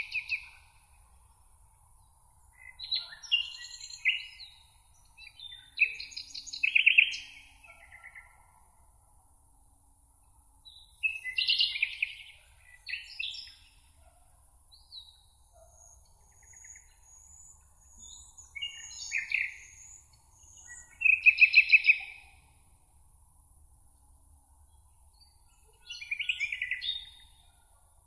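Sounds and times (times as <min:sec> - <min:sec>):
songbirds singing: 0:00.0 - 0:01.0, 0:01.9 - 0:08.6, 0:10.7 - 0:14.1, 0:14.7 - 0:22.6, 0:24.6 - 0:27.8.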